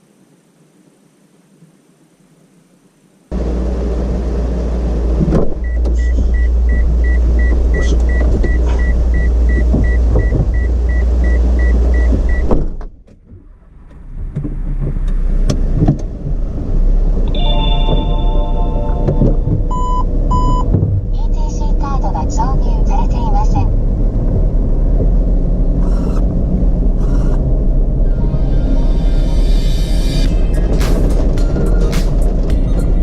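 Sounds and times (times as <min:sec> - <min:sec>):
vehicle low rumble: 0:00.0 - 0:33.0
electronic warning beeps: 0:05.6 - 0:12.5, 0:17.4 - 0:20.7, 0:27.0 - 0:27.4.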